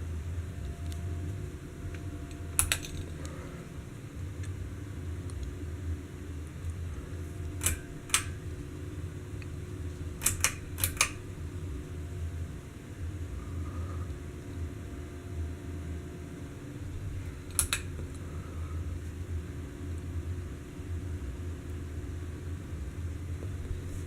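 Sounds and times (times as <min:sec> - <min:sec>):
ceiling fan humming: 0:00.0 - 0:24.0
sharp clicks: 0:01.9 - 0:03.4, 0:07.4 - 0:08.4, 0:10.2 - 0:11.3, 0:17.5 - 0:18.1.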